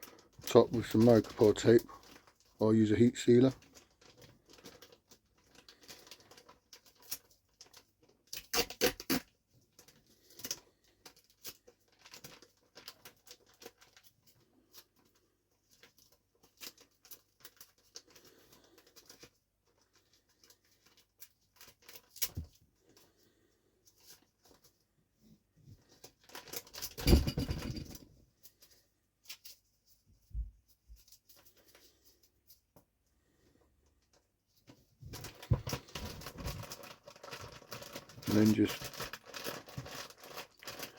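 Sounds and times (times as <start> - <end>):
plastic bag rustling: 0.0 - 8.2, 34.5 - 40.9
plastic bag crinkling: 0.0 - 24.7, 25.8 - 30.0, 35.0 - 40.9.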